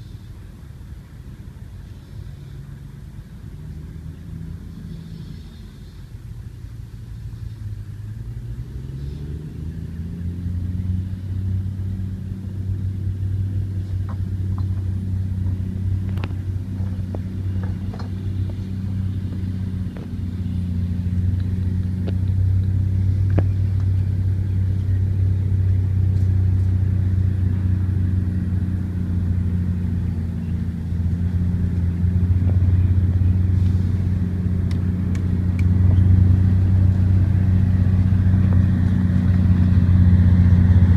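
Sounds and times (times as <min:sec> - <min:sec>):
heavy vehicle engine humming: 0:00.0 - 0:40.9.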